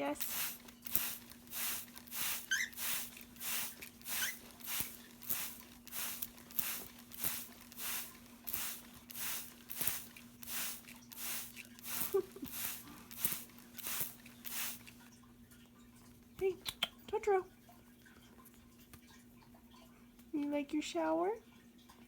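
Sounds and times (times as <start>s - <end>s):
spray bottle squirting water: 0.0s - 15.1s
faint cockatiel chirps: 2.4s - 2.8s.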